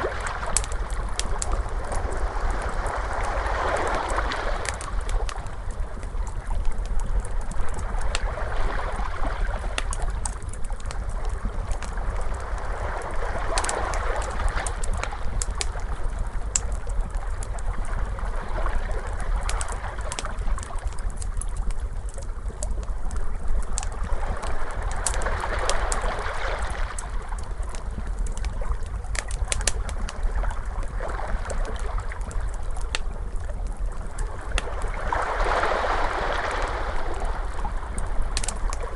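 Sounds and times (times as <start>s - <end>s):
ocean waves washing in: 0.0s - 5.4s, 34.5s - 38.8s
fire crackling and popping: 0.0s - 38.9s.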